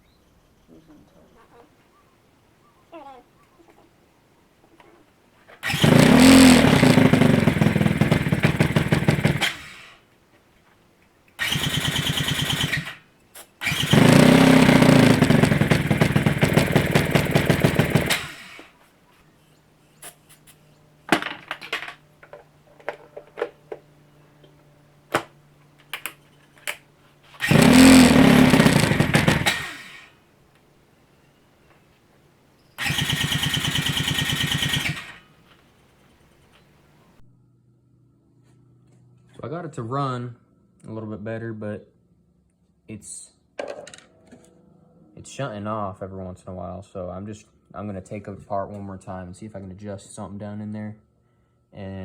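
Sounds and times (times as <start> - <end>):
engine cranking on starter: 5.6 - 10.0, 11.4 - 18.8, 25.1 - 30.2, 32.8 - 37.2.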